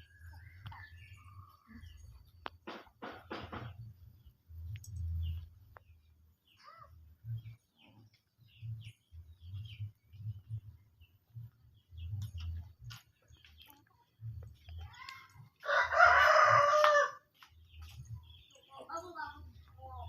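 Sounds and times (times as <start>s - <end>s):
small birds chirping: 0.0s - 20.0s
low thumps on microphone: 2.5s - 4.1s.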